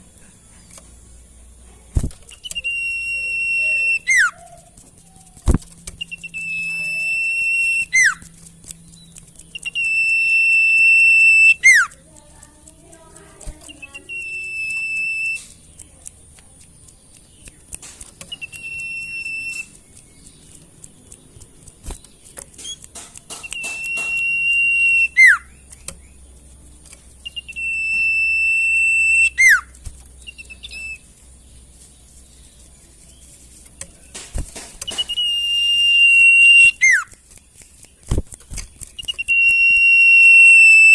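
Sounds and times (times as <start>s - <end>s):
bird whistle with downward swoop: 2.4s - 4.5s, 6.0s - 8.3s, 9.6s - 11.9s, 14.1s - 15.6s, 18.3s - 19.8s, 23.4s - 25.5s, 27.2s - 31.1s, 34.9s - 37.1s, 39.0s - 40.9s.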